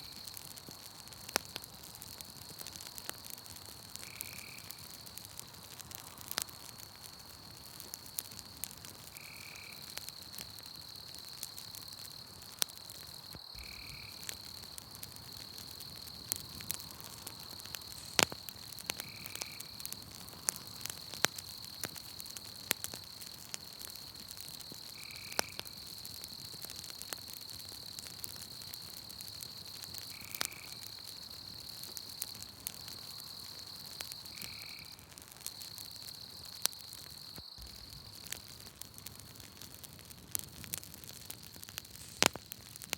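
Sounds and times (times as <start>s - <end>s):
campfire crackling and popping: 0.0s - 42.9s
high insect trill: 9.1s - 23.2s, 24.6s - 39.3s.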